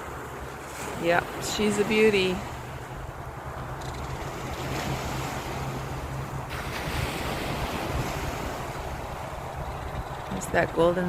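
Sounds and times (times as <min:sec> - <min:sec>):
waves washing on a beach: 0:00.0 - 0:11.0
wind rumbling on microphone: 0:00.0 - 0:11.0.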